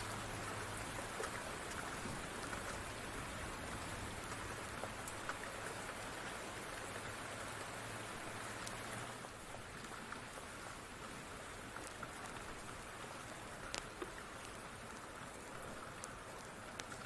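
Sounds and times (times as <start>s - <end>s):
wood fire crackling: 0.0s - 6.9s, 8.2s - 17.0s
rain hiss: 0.0s - 17.0s.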